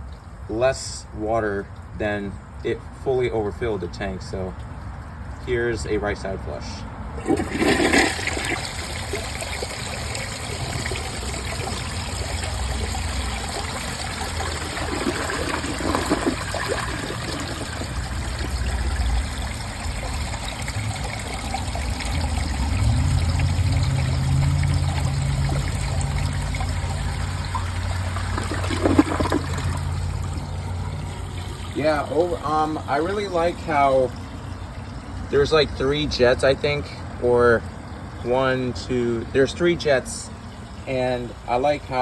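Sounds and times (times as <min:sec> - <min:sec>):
low steady hum: 0:00.0 - 0:42.0
water rushing and trickling: 0:00.0 - 0:42.0
toilet flushing: 0:07.1 - 0:36.4.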